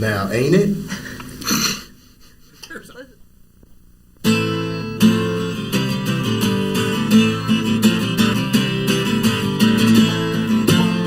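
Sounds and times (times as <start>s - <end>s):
acoustic guitars strumming: 4.2s - 11.0s.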